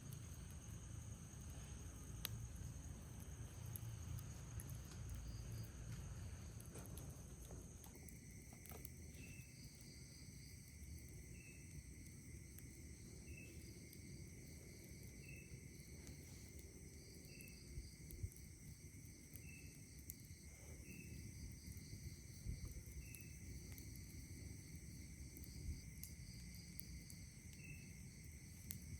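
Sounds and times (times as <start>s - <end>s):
crickets trilling: 0.0s - 28.9s
steady buzzing insect tone: 0.0s - 28.9s
short insect chirp: 7.7s - 28.9s.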